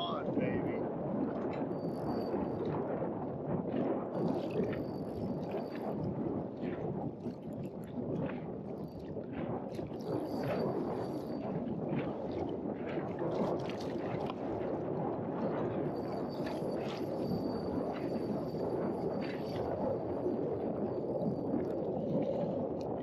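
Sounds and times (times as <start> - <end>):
wind buffeting microphone: 0.0 - 23.0
water lapping against boat: 12.0 - 14.8.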